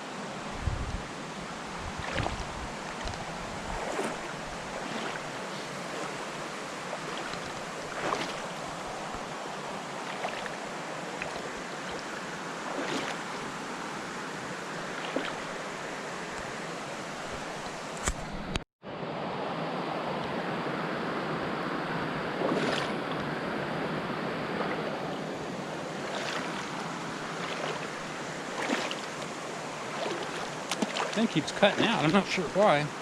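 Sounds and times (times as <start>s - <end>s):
creek rushing over rocks: 0.0s - 18.2s, 22.3s - 33.0s
footsteps splashing in water: 2.0s - 9.4s, 10.0s - 13.5s, 14.9s - 15.6s, 22.4s - 23.0s, 25.9s - 32.8s.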